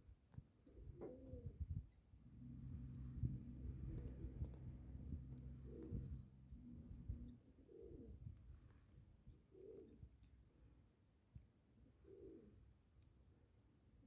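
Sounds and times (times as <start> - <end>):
bird cooing: 0.7 - 1.7, 3.4 - 8.3, 9.2 - 10.2, 11.8 - 12.6
low steady hum: 1.7 - 9.1.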